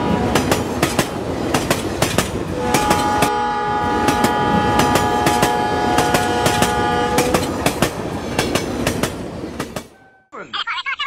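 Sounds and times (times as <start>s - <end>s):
horn-like pitched tone: 2.6s - 7.4s.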